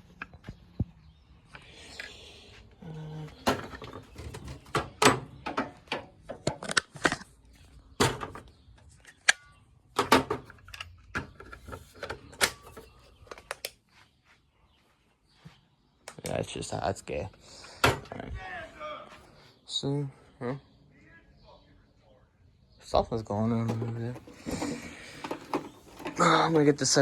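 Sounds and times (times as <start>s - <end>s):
hard objects knocking and clattering: 23.6s - 26.6s.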